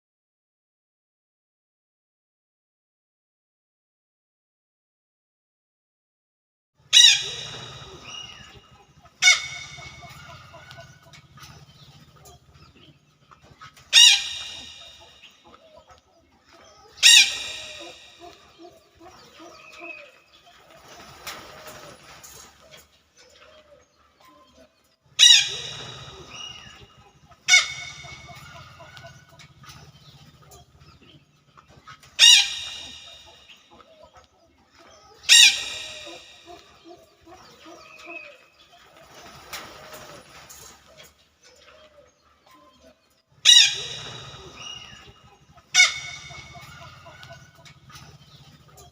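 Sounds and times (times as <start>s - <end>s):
chicken calling: 6.9s - 12.4s, 13.2s - 16.0s, 16.6s - 22.8s, 25.2s - 30.8s, 31.6s - 40.4s, 42.5s - 48.9s.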